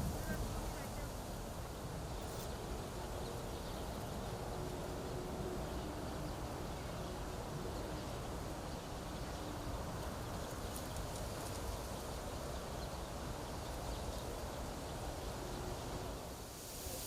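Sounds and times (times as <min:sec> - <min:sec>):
wind blowing through reeds: 0:09.6 - 0:17.0.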